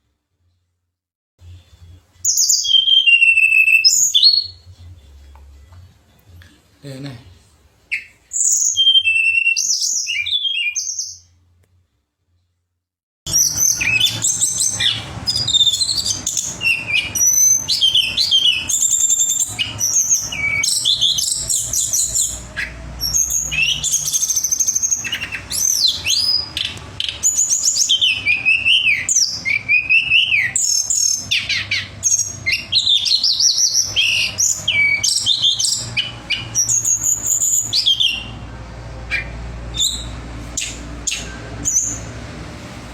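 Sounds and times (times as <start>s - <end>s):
bird singing whistled phrases: 2.3s - 4.6s, 7.9s - 11.2s, 13.3s - 38.4s, 39.1s - 42.1s.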